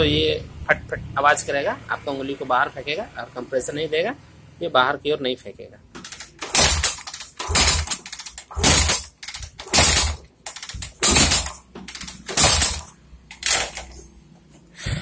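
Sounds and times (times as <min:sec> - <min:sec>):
engine kick start puffs: 0:06.0 - 0:14.1.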